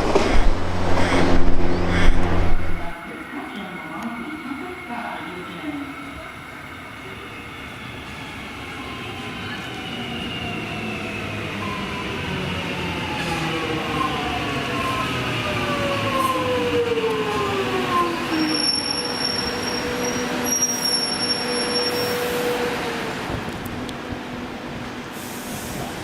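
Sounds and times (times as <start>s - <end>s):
wheels rumbling on rails: 0.0s - 3.0s.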